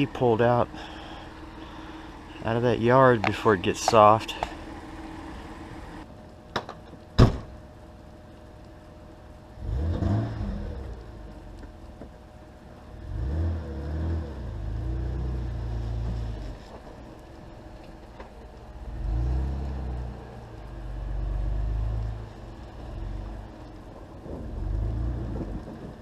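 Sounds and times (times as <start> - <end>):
car engine running: 0.0 - 6.0.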